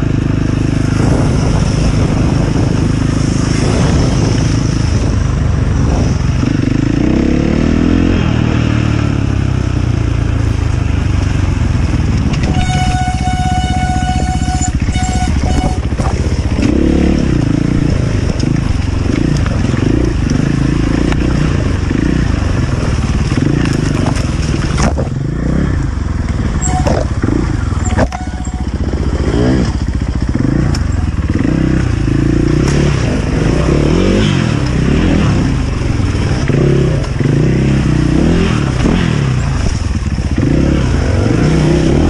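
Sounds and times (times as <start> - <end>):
motorcycle engine revving: 0.0 - 42.0
steady high-pitched tone: 12.5 - 15.8, 26.6 - 27.1, 27.8 - 29.0.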